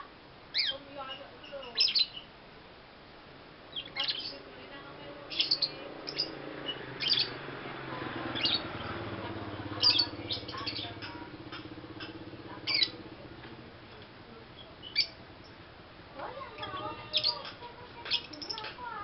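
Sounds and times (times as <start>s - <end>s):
lovebird squawking chirps: 0.5s - 2.3s, 3.7s - 4.4s, 5.3s - 7.4s, 8.3s - 8.9s, 9.7s - 11.3s, 12.0s - 13.0s, 14.6s - 15.6s, 16.4s - 18.8s.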